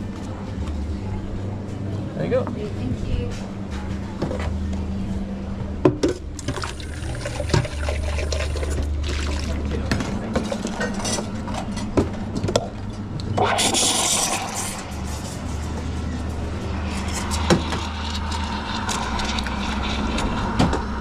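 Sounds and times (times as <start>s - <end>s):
espresso machine hum: 6.4s - 9.7s, 13.4s - 21.0s
steam hissing: 13.4s - 15.4s.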